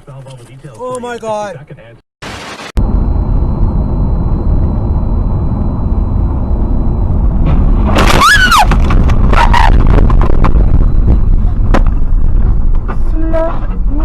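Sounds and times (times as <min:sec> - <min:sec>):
vehicle road rumble: 0:02.8 - 0:14.0.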